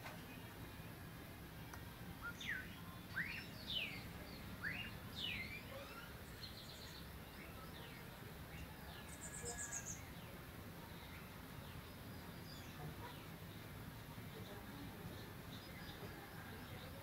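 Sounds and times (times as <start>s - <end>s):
sweeping whistled bird notes: 2.2s - 10.2s.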